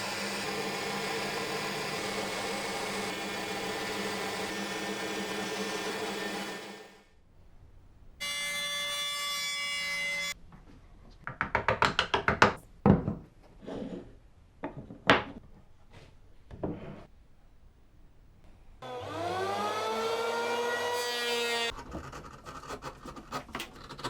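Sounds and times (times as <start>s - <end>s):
small power tool running: 0.0s - 7.0s, 18.8s - 21.7s.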